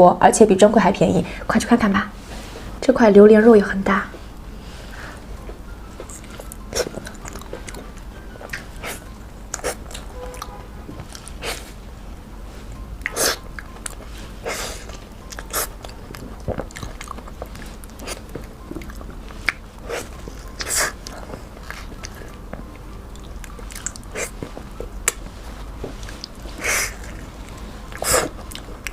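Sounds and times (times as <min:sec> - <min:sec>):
biting and chewing: 0:05.9 - 0:11.8, 0:12.7 - 0:28.9.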